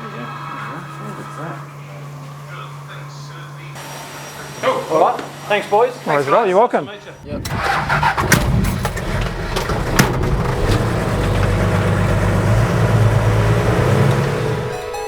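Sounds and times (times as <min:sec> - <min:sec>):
diesel engine running: 0:07.1 - 0:15.0.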